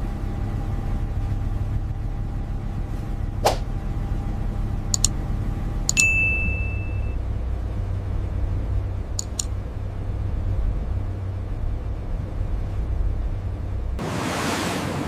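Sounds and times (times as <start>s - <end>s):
steady low rumble: 0.0s - 14.2s
short electronic clicks: 5.9s - 7.1s, 9.2s - 9.5s
high sonar ping: 5.9s - 7.2s.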